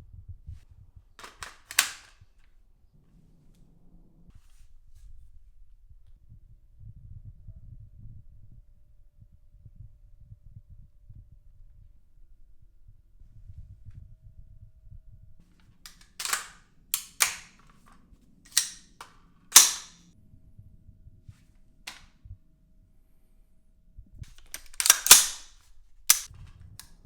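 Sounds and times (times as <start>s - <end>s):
rifle gunshots with echo: 19.6s - 20.0s, 24.8s - 25.5s.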